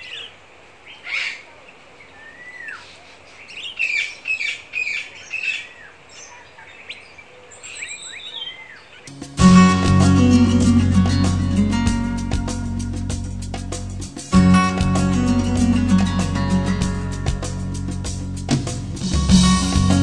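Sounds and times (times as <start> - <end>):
faint steady hiss: 0.0 - 20.0
songbirds chirping: 0.0 - 20.0
strummed acoustic guitar music: 9.1 - 20.0.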